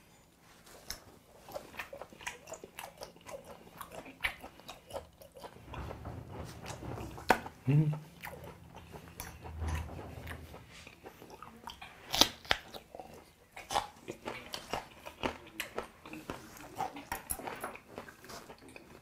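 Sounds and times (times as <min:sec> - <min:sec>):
wet chewing clicks: 0:00.8 - 0:05.6.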